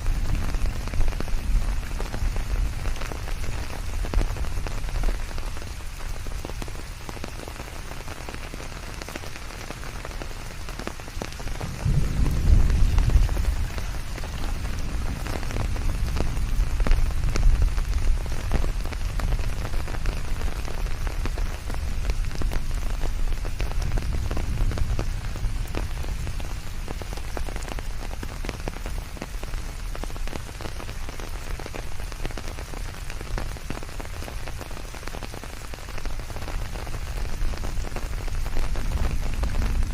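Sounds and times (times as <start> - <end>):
rain falling on leaves: 0.0 - 39.9
low rumble: 11.6 - 17.8, 37.7 - 39.9.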